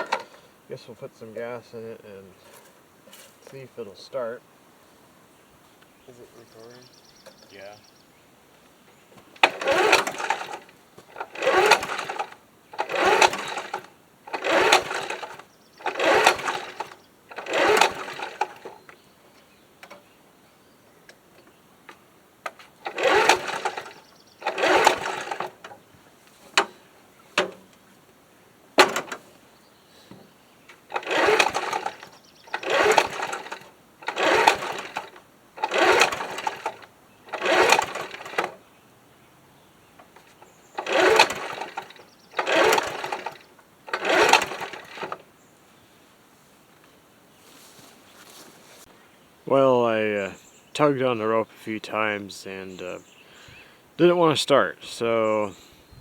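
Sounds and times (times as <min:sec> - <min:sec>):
mower engine cranking: 0:00.0 - 0:00.5, 0:09.2 - 0:20.1, 0:21.1 - 0:28.0, 0:28.7 - 0:29.4, 0:30.1 - 0:38.7, 0:39.8 - 0:45.4, 0:49.5 - 0:54.1.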